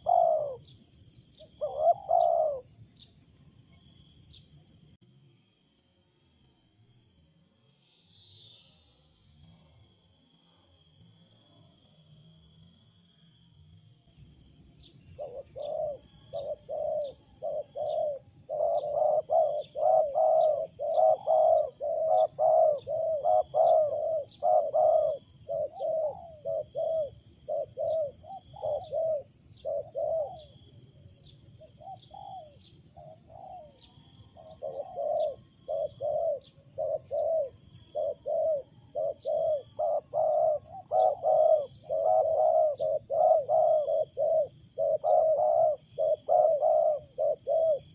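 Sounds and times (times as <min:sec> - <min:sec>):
dove cooing: 0:00.0 - 0:02.8, 0:14.8 - 0:47.9.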